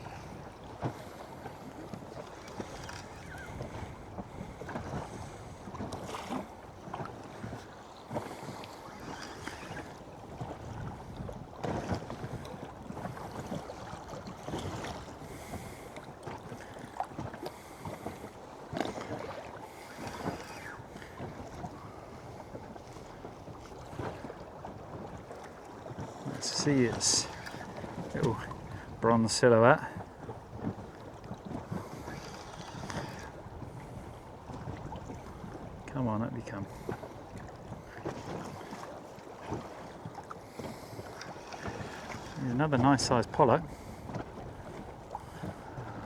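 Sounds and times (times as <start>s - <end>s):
wind on microphone: 0.0s - 15.8s, 25.9s - 35.9s, 43.6s - 46.0s
water lapping against boat hull: 0.0s - 46.0s.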